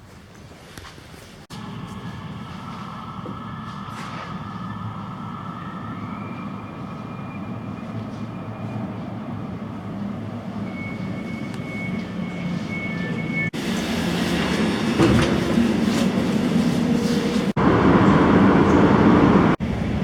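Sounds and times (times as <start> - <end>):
electric train rumbling: 1.5 - 20.0.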